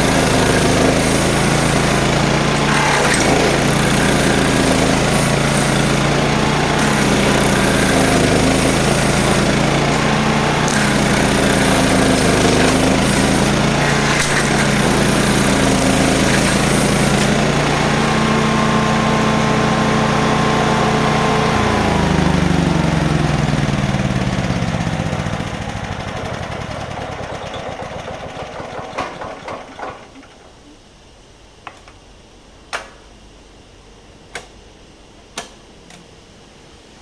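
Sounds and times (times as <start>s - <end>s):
harsh grinding noise: 0.0s - 30.4s
stump grinder engine running: 0.0s - 30.5s
engine winding down: 0.0s - 30.6s
knocks of machine stopping: 23.8s - 30.6s.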